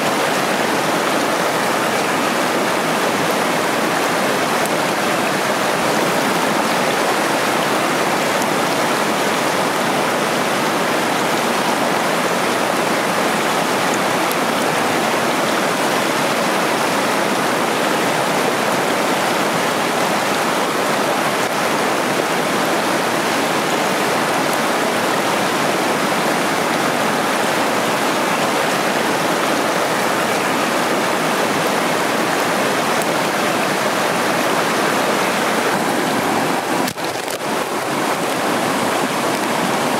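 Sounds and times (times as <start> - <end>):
water tumbling over rocks: 30.7 - 39.9.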